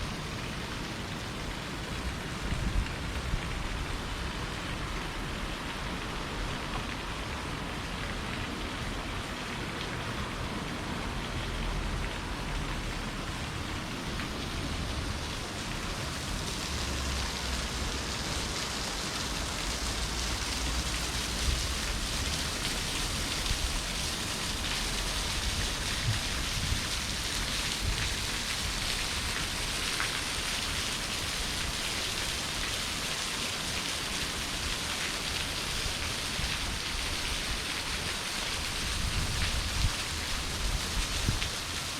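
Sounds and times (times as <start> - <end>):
rushing water: 0.0 - 41.9.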